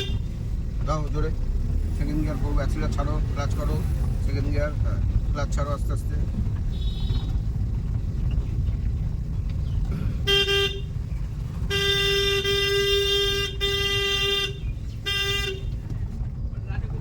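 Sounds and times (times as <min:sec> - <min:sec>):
car driving rumble from inside: 0:00.0 - 0:17.0
vehicle horn honking: 0:06.7 - 0:07.4, 0:10.2 - 0:11.0, 0:11.6 - 0:15.8.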